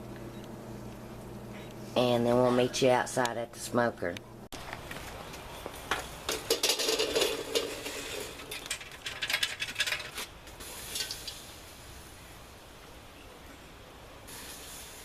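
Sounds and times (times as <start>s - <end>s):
metal clinking and rattling: 6.3s - 10.3s.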